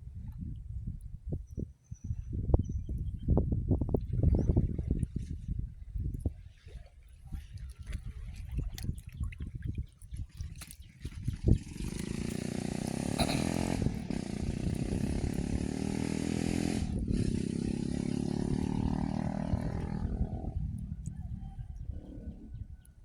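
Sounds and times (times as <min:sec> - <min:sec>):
small engine running: 0:11.6 - 0:20.3.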